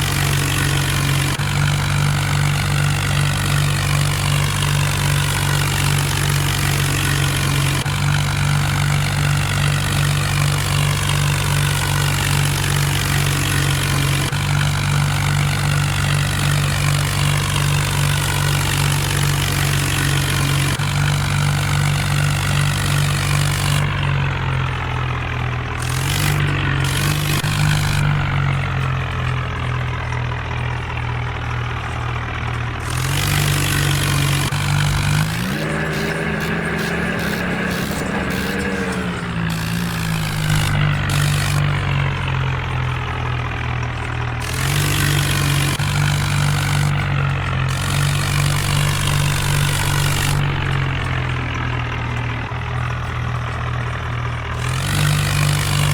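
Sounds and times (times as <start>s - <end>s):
rotavator noise: 0.0s - 55.9s
tractor diesel engine running: 0.0s - 55.9s.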